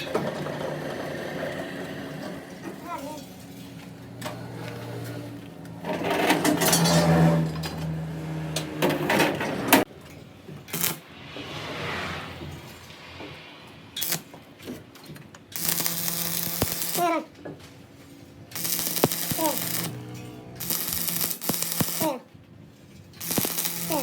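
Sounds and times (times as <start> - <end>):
metal parts and tools clanking: 0.0 - 11.0, 16.7 - 21.3.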